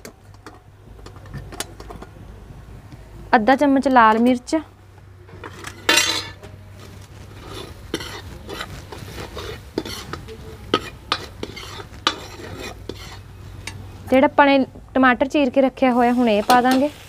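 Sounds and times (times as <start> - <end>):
ladle scraping iron pan: 5.4 - 6.5, 7.2 - 13.8.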